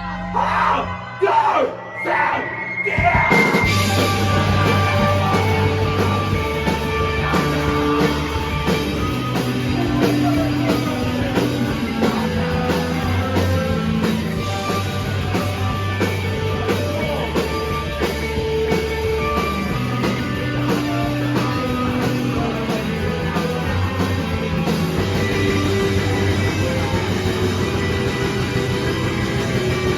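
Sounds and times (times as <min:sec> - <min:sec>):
rock band playing live: 0:03.0 - 0:29.9.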